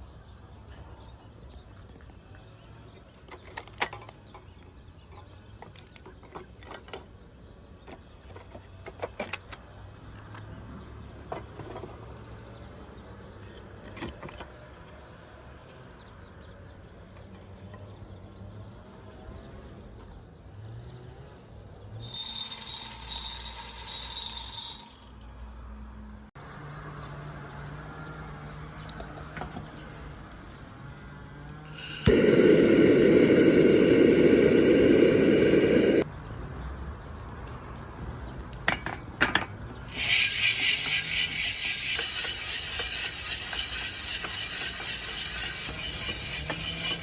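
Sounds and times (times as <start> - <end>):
coffee beans rattling in roasting drum: 22.0 - 25.2, 31.7 - 36.0, 39.9 - 47.0
loud high ringing: 22.0 - 25.2, 31.7 - 36.0.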